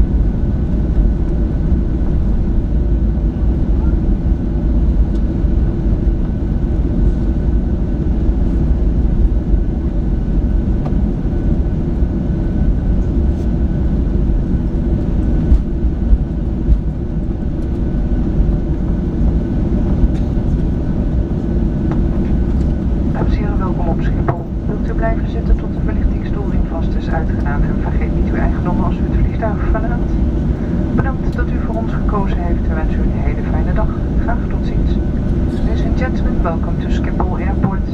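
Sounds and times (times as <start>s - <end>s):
aircraft cabin engine rumble: 0.0s - 37.9s
faint steady whine: 12.0s - 37.9s.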